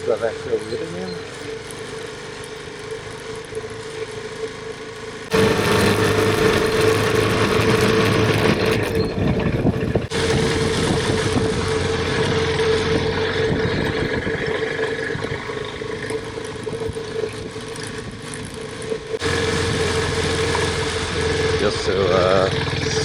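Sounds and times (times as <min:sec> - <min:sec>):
motorcycle engine running: 0:00.0 - 0:23.0
tyre ground noise: 0:00.0 - 0:23.0
rushing wind: 0:05.3 - 0:16.0.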